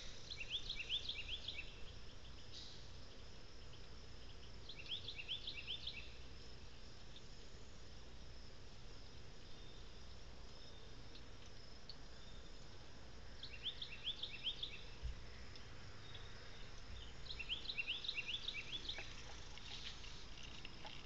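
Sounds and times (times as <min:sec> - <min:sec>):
insects humming: 0:00.0 - 0:21.0
bird rising chirps: 0:16.0 - 0:19.6.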